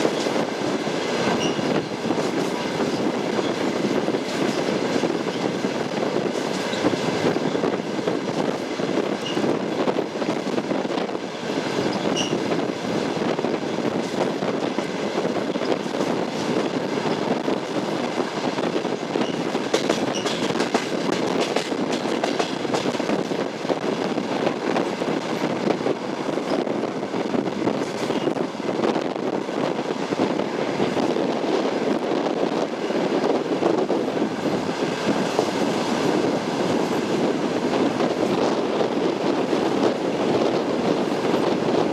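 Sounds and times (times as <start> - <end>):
train wheels rumbling on track: 0.0 - 41.9
faint wheel squeals: 1.4 - 1.6.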